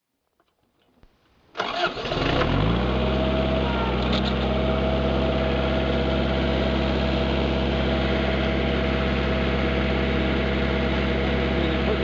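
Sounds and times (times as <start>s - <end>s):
tractor engine idling: 1.6s - 12.0s.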